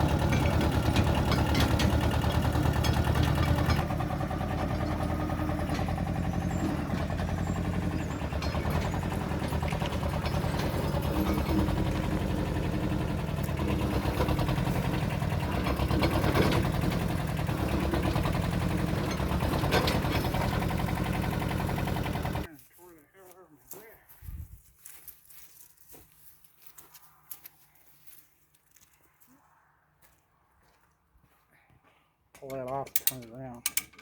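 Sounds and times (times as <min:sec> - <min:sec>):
small diesel engine idling: 0:00.0 - 0:22.5.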